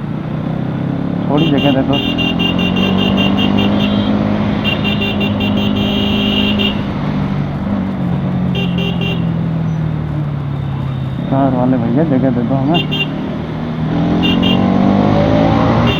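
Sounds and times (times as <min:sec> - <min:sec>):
motorcycle engine running: 0:00.0 - 0:15.9
horn beeping in rapid taps: 0:01.4 - 0:06.9, 0:08.6 - 0:09.4, 0:14.2 - 0:14.7.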